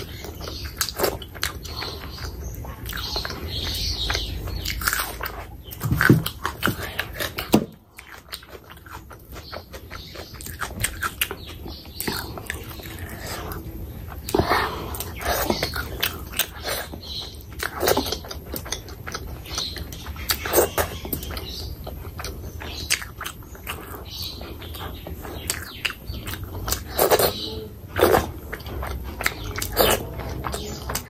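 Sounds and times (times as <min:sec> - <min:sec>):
wet chewing and lip-smacking: 0:00.0 - 0:31.0.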